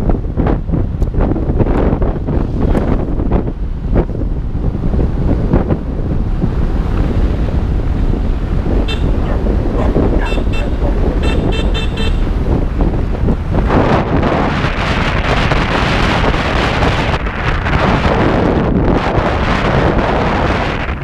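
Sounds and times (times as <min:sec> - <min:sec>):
wind buffeting microphone: 0:00.0 - 0:21.0
motorbike engine: 0:01.7 - 0:18.6
short horn beeps: 0:08.9 - 0:09.2, 0:10.2 - 0:12.3.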